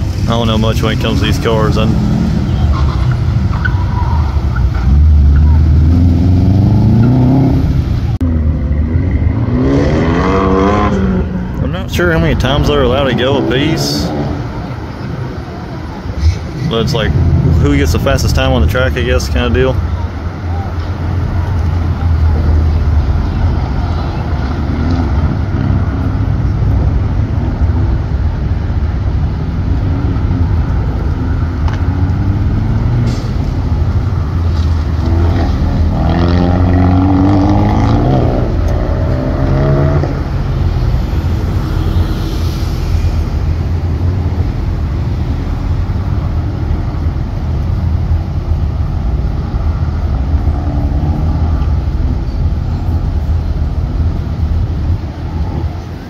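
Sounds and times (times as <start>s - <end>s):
sports car engine revving: 4.3s - 14.8s, 29.8s - 48.7s.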